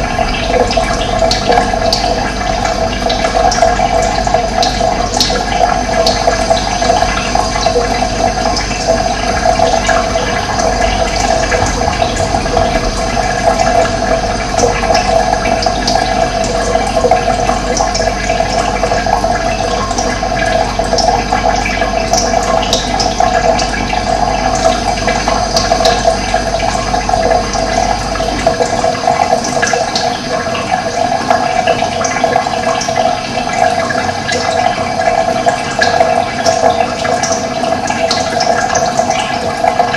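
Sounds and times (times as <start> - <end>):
low rumble: 0.0 - 6.2, 7.8 - 19.4
running water rushing: 0.0 - 39.9.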